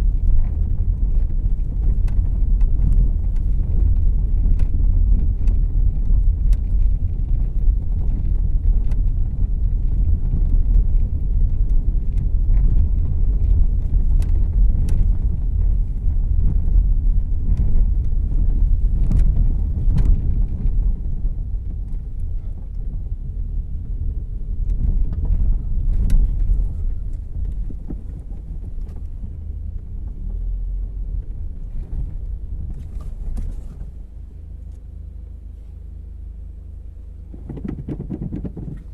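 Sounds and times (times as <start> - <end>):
road and engine rumble: 0.0 - 38.9
light clicks and knocks: 37.3 - 38.9.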